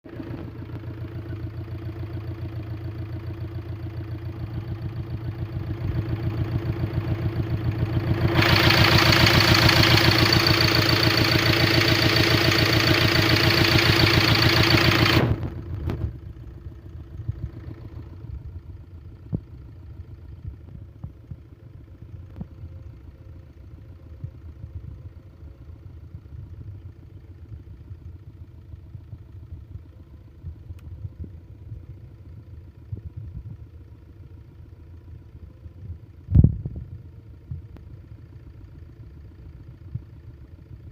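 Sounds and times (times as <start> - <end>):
car engine pulsing: 0.0 - 40.9
engine hiss: 5.1 - 15.6.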